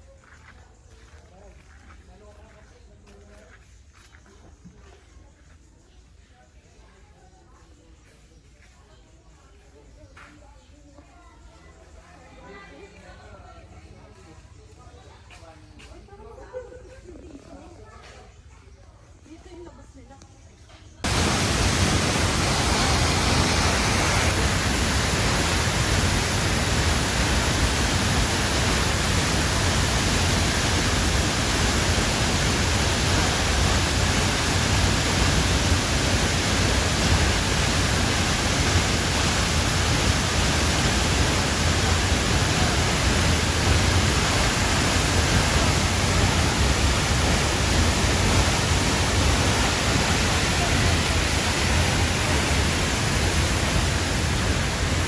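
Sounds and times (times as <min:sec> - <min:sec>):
loud rushing noise: 0:21.0 - 0:55.0.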